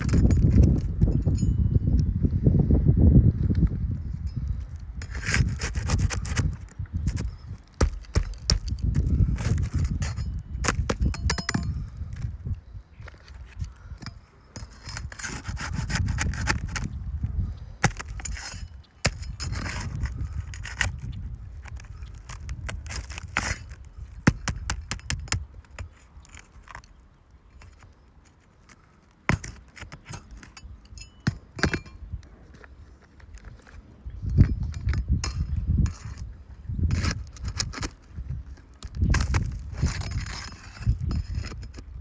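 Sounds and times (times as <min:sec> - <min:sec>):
scraping on roof shingles: 0:05.0 - 0:12.3, 0:13.1 - 0:16.9, 0:17.8 - 0:26.9, 0:35.8 - 0:41.8.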